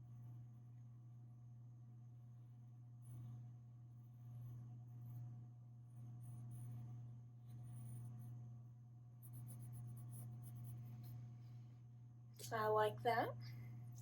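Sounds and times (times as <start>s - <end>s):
steady low hum: 0.0s - 14.0s
pencil scratching on paper: 9.2s - 11.2s.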